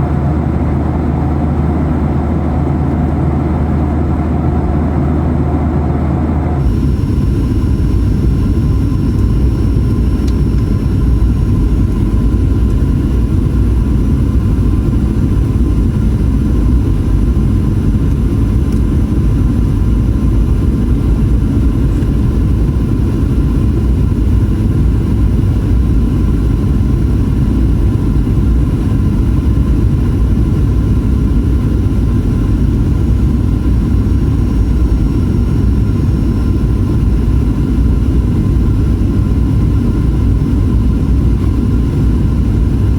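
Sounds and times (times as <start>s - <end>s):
airplane cabin engine rumble: 0.0s - 42.9s
faint steady whine: 0.0s - 42.9s.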